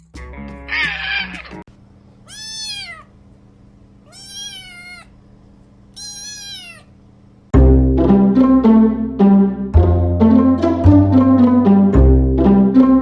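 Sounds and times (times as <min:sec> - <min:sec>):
cat meowing: 0:00.7 - 0:01.6, 0:02.3 - 0:03.1, 0:04.0 - 0:05.1, 0:05.9 - 0:07.0.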